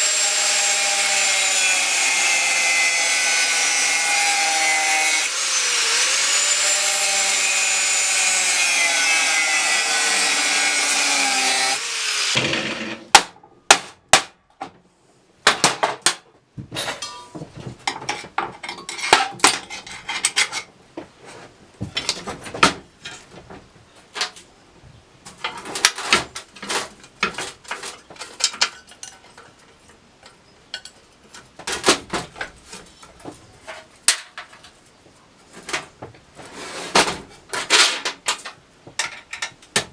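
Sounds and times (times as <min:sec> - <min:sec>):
power tool running: 0:04.4 - 0:13.0.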